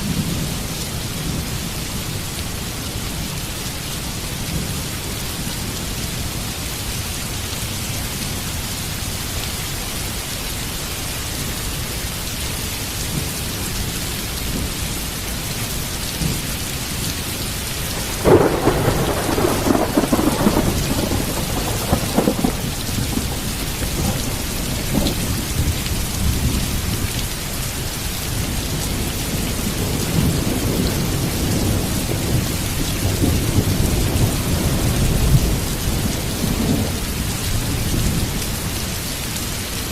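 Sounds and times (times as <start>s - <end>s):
heavy rain falling: 0.0s - 39.9s
thunderclap and rolling thunder: 17.9s - 27.1s, 28.3s - 38.4s.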